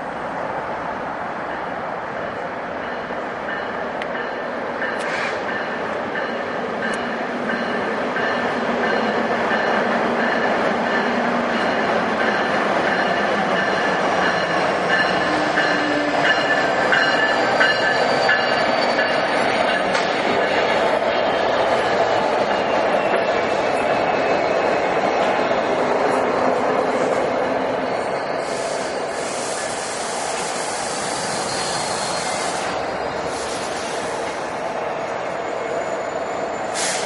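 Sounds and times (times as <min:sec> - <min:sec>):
train wheels rumbling: 0:00.0 - 0:37.0
wheel squeal: 0:31.0 - 0:33.2.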